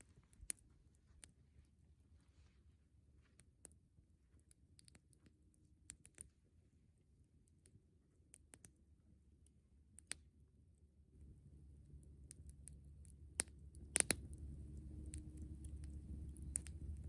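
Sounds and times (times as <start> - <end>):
low rumble: 11.2 - 17.0
campfire wood crackling and popping: 11.9 - 17.0.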